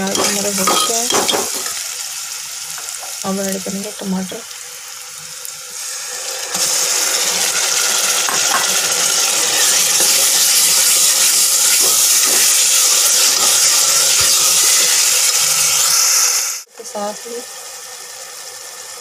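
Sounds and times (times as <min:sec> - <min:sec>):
food sizzling in hot oil: 0:00.0 - 0:19.0
ladle clinking against pot: 0:00.1 - 0:01.7.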